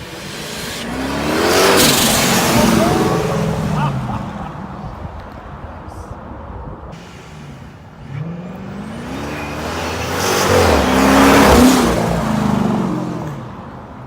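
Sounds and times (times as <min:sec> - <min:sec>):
supercharger hiss: 0:00.0 - 0:03.4
car engine revving: 0:00.0 - 0:04.6, 0:07.0 - 0:13.8.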